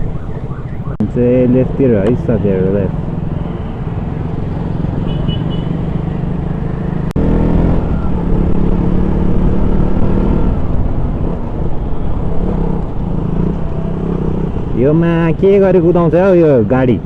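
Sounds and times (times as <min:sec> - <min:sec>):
road and wind noise: 0:00.0 - 0:17.0
motorcycle engine accelerating: 0:04.0 - 0:14.8.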